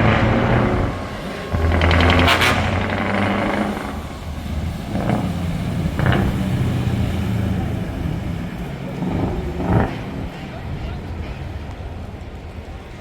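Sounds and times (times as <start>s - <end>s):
sharp engine bursts: 0.0s - 5.4s
truck engine droning: 0.0s - 13.0s.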